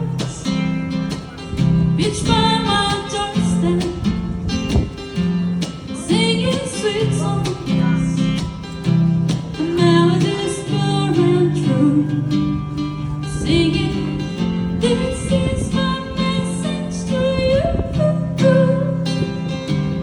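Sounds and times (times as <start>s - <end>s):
strummed acoustic guitar: 0.0s - 20.0s
woman singing: 1.9s - 4.4s, 5.9s - 8.2s, 9.6s - 12.6s, 13.2s - 19.8s.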